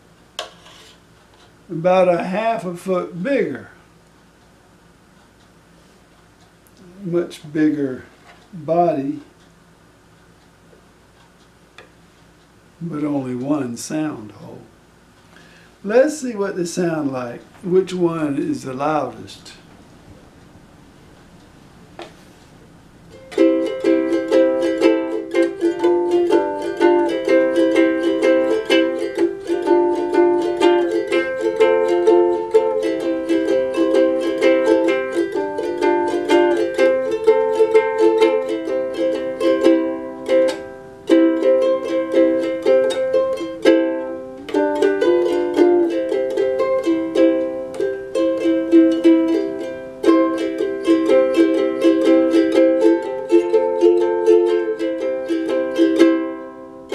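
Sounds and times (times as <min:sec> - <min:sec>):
ukulele strumming chords: 0:22.9 - 0:56.9.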